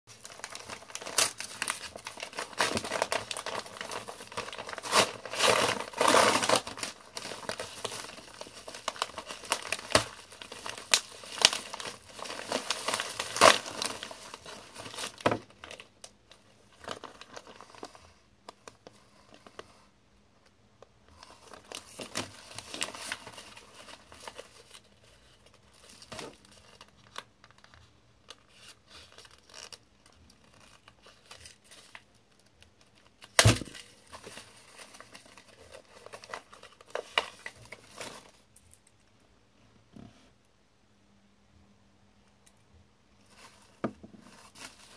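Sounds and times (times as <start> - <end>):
packaging tearing and crinkling: 0.1 - 17.9, 21.4 - 27.7, 28.3 - 38.4, 43.3 - 44.9.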